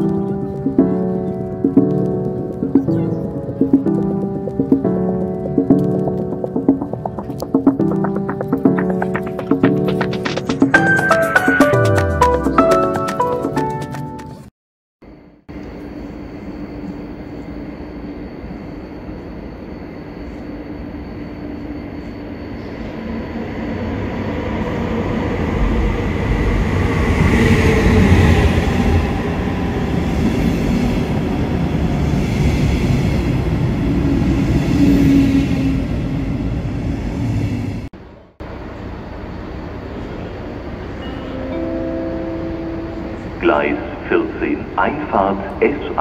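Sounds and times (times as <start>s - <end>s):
train rumbling through station: 0.0s - 14.4s, 15.5s - 46.0s
faint whining tones: 15.0s - 24.3s.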